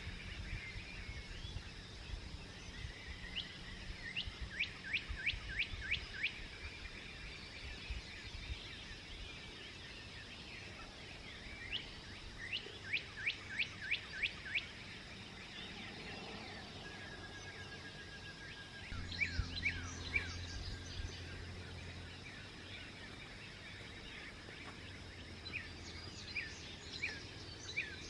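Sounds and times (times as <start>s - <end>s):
faint bird chirps: 0.0s - 28.0s.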